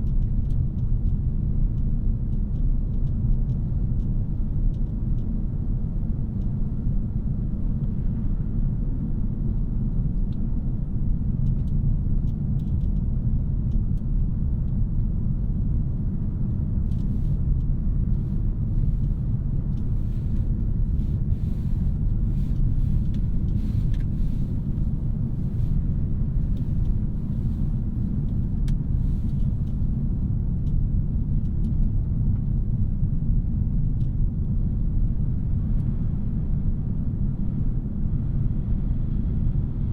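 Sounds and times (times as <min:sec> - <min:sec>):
car engine and road noise: 0:16.9 - 0:30.6.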